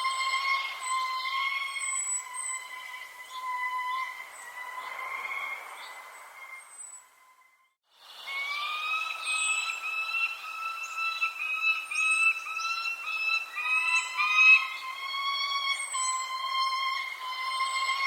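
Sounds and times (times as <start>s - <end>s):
bird whistling notes: 0.0s - 7.5s, 8.2s - 18.0s
second bird singing: 8.2s - 18.0s
high falling chirps: 8.4s - 18.0s.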